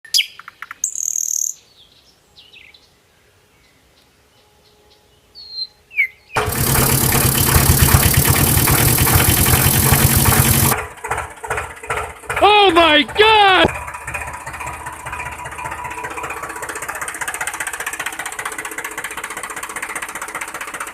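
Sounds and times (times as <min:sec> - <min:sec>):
engine running with pulsing beat: 0:06.4 - 0:20.9.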